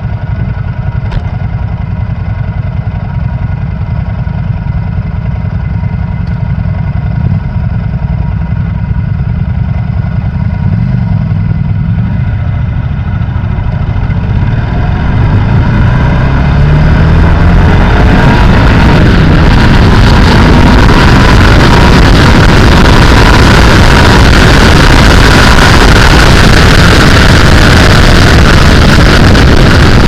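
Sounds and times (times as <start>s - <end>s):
motorcycle engine running: 0.0s - 30.0s
wind rushing noise: 13.1s - 30.0s.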